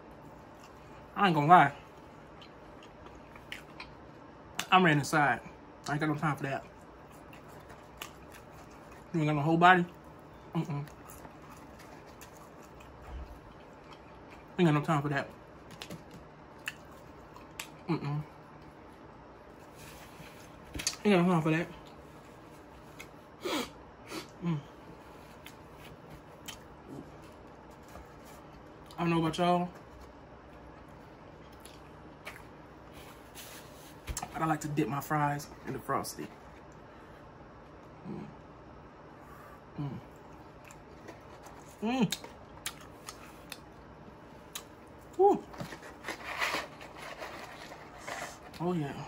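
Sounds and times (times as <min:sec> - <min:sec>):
quiet chewing and mouth clicks: 0:01.9 - 0:04.7, 0:06.7 - 0:09.2, 0:09.9 - 0:14.6, 0:15.6 - 0:17.9, 0:26.3 - 0:29.0, 0:30.0 - 0:32.6, 0:40.1 - 0:43.8
appreciative mm hum: 0:15.7 - 0:19.0, 0:21.7 - 0:28.9, 0:36.3 - 0:43.8, 0:44.4 - 0:48.6
closed-mouth hums: 0:37.8 - 0:38.6
paper carton crinkling: 0:45.4 - 0:48.6.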